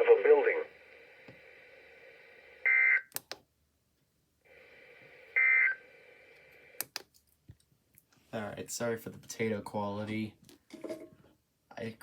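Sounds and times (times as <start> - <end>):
faint radio hiss: 0.0 - 3.1, 4.0 - 6.8
sharp clicks: 3.1 - 3.4, 6.8 - 7.2.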